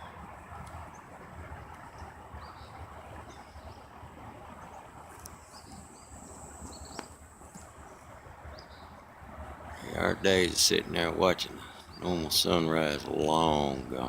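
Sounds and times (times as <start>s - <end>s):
high bird chirps: 5.4s - 7.1s.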